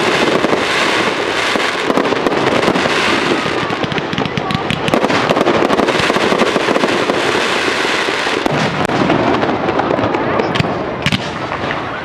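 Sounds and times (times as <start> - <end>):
fireworks crackling: 0.0 - 12.0
loud firework bangs: 0.0 - 12.0
firework pops: 10.4 - 11.8.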